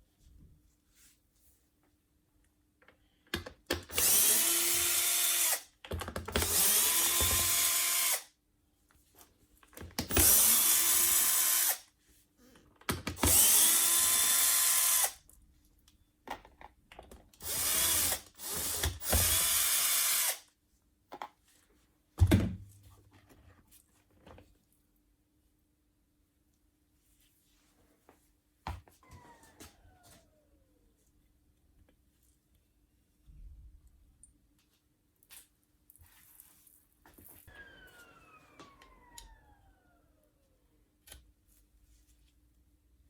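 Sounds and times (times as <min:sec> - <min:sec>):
small electric motor whirring: 0:03.9 - 0:05.7, 0:06.4 - 0:08.3, 0:10.1 - 0:11.8, 0:13.2 - 0:15.2, 0:17.4 - 0:20.4.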